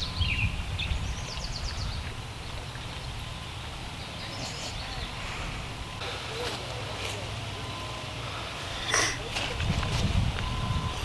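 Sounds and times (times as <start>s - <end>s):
wind rumble on microphone: 0.0s - 3.5s, 9.3s - 11.0s
songbird chirping trills: 0.0s - 6.5s.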